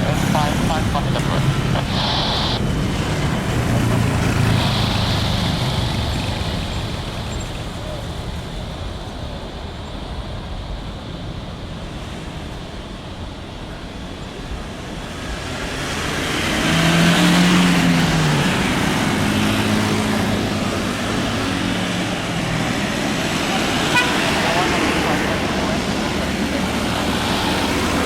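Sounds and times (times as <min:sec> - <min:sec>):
traffic rumble: 0:00.0 - 0:28.0
vehicle passing close by: 0:15.1 - 0:28.0.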